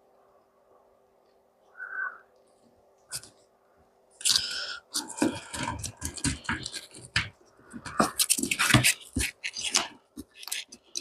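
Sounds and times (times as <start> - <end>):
brackets knocking and scraping: 5.0 - 10.7.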